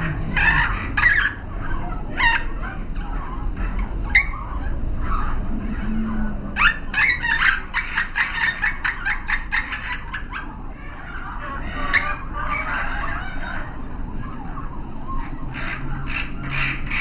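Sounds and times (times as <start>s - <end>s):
caged birds chirping: 0.0s - 17.0s.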